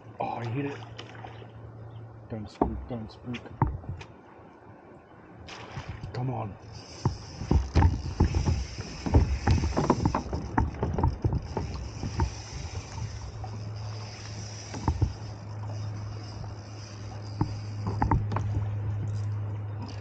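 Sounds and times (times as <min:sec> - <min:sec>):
steady low hum: 0:00.0 - 0:20.0
water noise: 0:00.0 - 0:20.0
wind: 0:00.0 - 0:20.0
tackle knocking against kayak: 0:02.6 - 0:04.1, 0:07.0 - 0:13.1, 0:14.7 - 0:15.2, 0:17.3 - 0:19.2.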